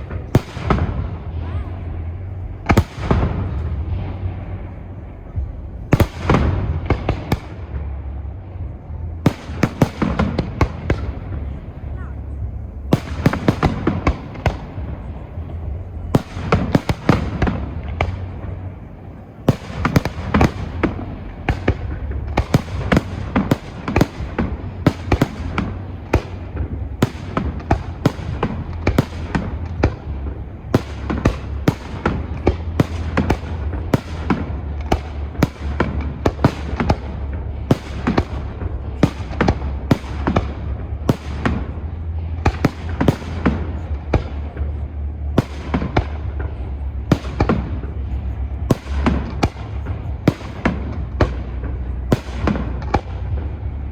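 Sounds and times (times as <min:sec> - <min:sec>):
fireworks bangs and crackles: 0:00.0 - 0:53.9
low rumble: 0:00.0 - 0:53.9.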